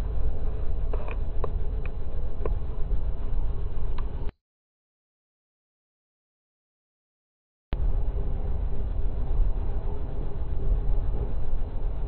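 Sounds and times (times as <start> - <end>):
faint steady whine: 0.0 - 4.3, 7.8 - 12.0
steel wheels rumbling on rail: 0.0 - 4.3, 7.8 - 12.0.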